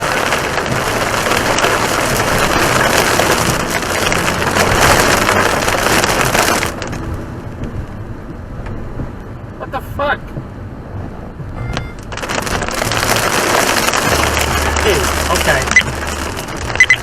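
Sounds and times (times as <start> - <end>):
heavy rain pouring: 0.0 - 8.1, 12.0 - 17.0.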